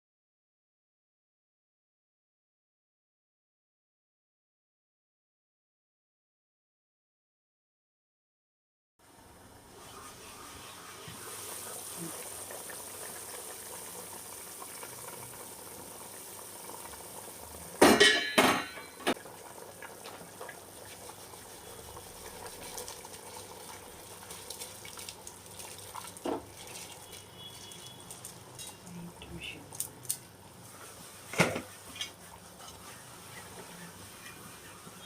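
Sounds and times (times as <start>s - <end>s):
water hissing in pot: 9.4s - 17.8s, 18.8s - 35.0s
metal kitchenware clanking on pot: 17.8s - 19.1s, 28.5s - 28.9s.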